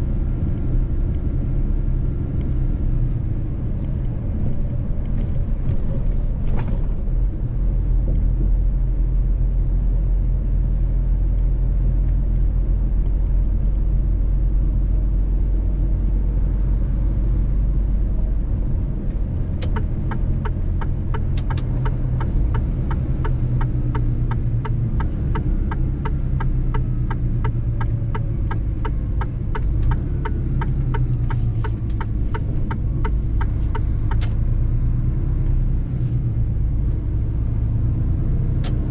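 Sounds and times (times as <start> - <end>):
truck engine and road rumble: 0.0 - 38.9
regular ticking: 19.6 - 34.3.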